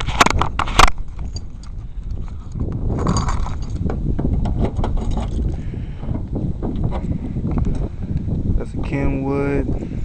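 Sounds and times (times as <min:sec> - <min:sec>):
handling noise: 0:00.0 - 0:07.9.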